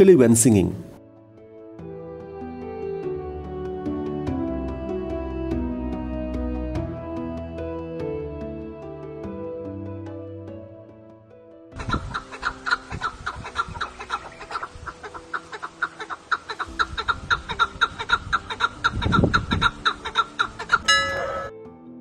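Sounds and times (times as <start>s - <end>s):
partridge clucking call: 11.8s - 21.5s
higher bird call: 20.6s - 21.6s.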